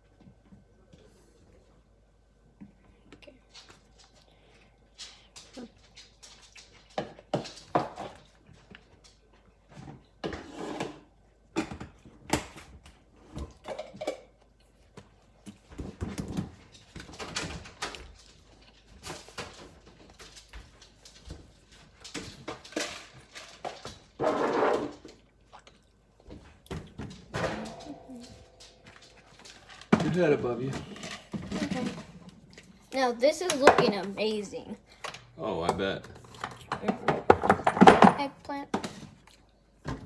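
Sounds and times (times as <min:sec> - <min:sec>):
utensils clattering: 0:27.3 - 0:32.2.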